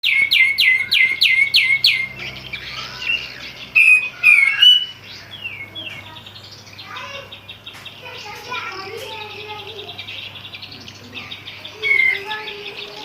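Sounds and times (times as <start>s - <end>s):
bird chirps and whistles: 0.0s - 5.8s
songbird calling: 0.0s - 13.0s.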